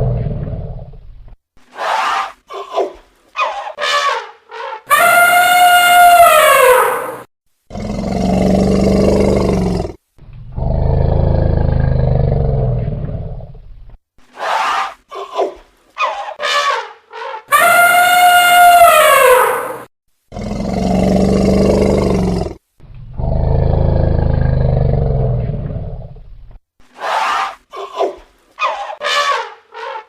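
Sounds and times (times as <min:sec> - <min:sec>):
elephant low roars: 0:00.0 - 0:01.0, 0:07.7 - 0:13.6, 0:20.3 - 0:26.2
elephant trumpeting: 0:03.4 - 0:07.3, 0:16.0 - 0:19.9, 0:28.6 - 0:30.0.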